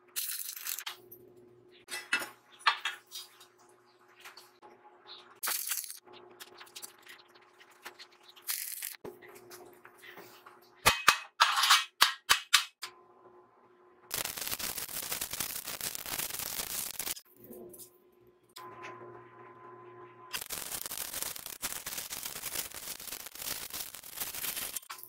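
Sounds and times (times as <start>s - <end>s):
arc welding crackling: 14.1s - 17.2s, 20.3s - 25.0s.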